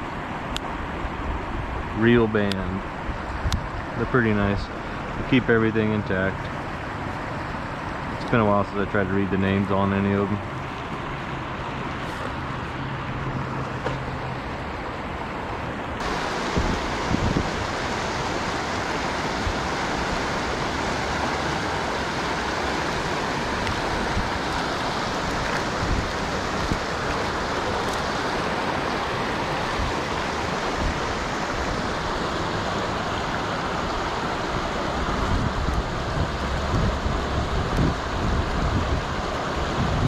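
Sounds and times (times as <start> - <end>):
river water rushing: 0.0 - 40.0
wind buffeting microphone: 16.0 - 21.2, 21.9 - 28.6, 34.9 - 40.0.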